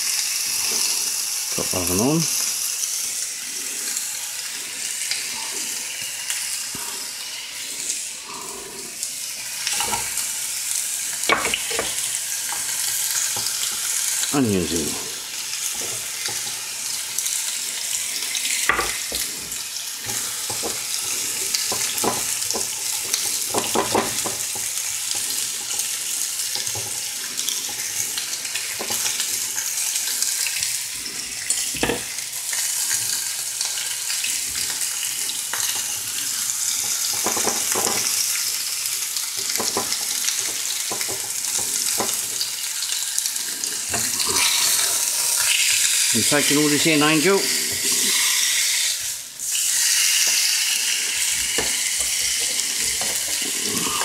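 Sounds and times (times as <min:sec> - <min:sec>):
steaks sizzling in frying pans: 0:00.0 - 0:54.0
utensils knocking on pans: 0:11.3 - 0:12.7, 0:18.7 - 0:25.9, 0:36.8 - 0:38.2, 0:39.4 - 0:42.4, 0:51.5 - 0:53.5.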